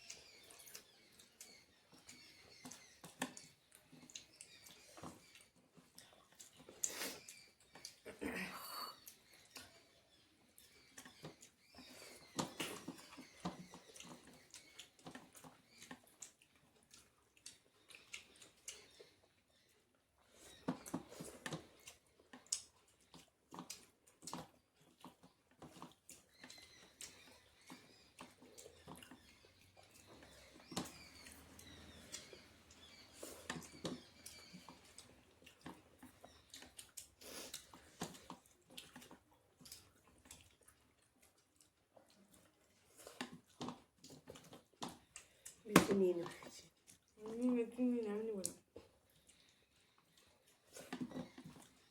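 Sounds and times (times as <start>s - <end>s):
soft chewing: 0.0s - 51.9s
lip smacks: 11.4s - 19.0s, 29.8s - 47.2s.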